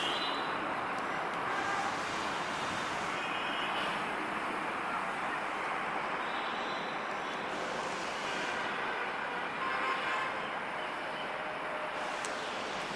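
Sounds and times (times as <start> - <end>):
train wheels on track: 0.0 - 3.2, 7.1 - 8.8, 11.4 - 12.9.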